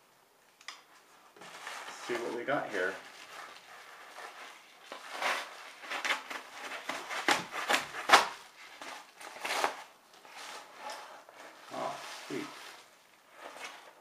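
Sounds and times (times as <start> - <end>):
wrapping tearing and rustling: 1.4 - 14.0.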